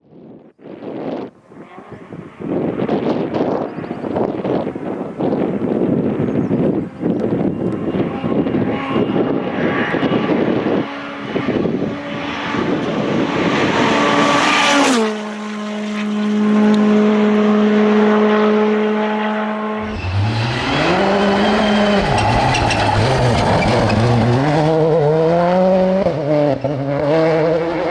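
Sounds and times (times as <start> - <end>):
engine revving: 7.8 - 27.9.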